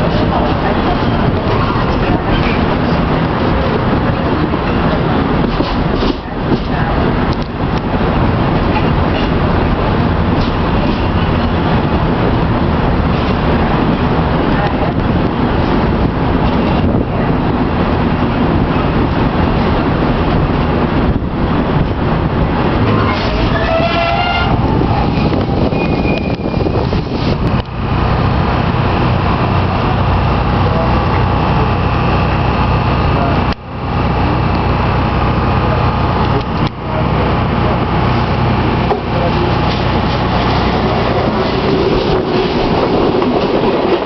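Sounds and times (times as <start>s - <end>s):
train wheels rumbling on rail: 0.0s - 44.0s
wind rushing past: 7.0s - 30.3s, 39.5s - 44.0s.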